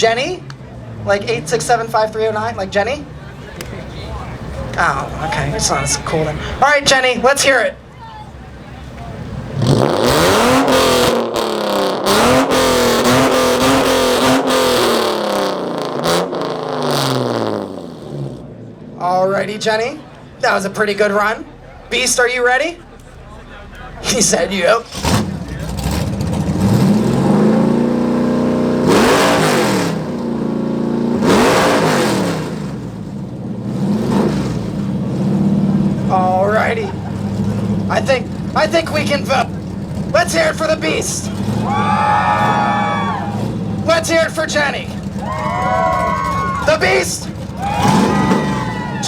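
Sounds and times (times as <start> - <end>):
car engine revving: 3.0 - 7.6, 8.3 - 22.2, 22.9 - 49.0
sharp exhaust cracks: 8.4 - 18.9, 22.9 - 36.2, 36.9 - 49.0.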